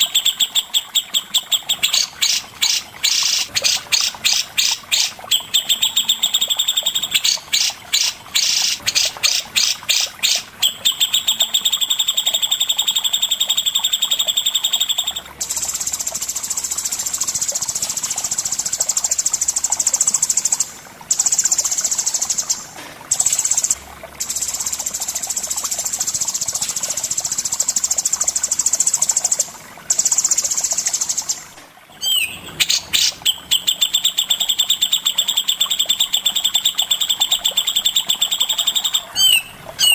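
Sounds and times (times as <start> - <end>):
songbird trilling: 0.0 - 15.6, 32.0 - 39.9.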